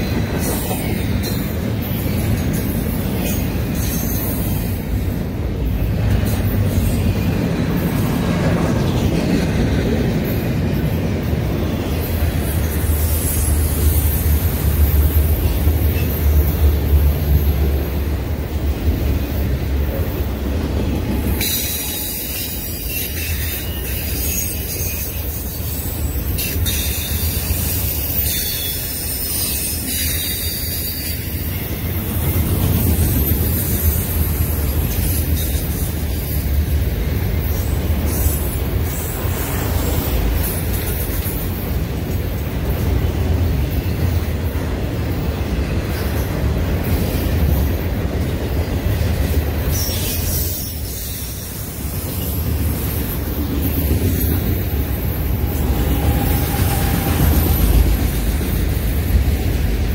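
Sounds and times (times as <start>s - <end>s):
higher-pitched rail noise: 0.0s - 59.9s
steel wheels rumbling on rail: 0.0s - 59.9s.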